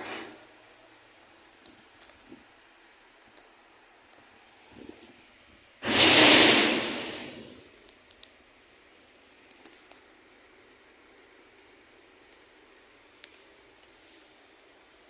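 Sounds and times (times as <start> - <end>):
air brakes hissing: 5.8 - 7.6.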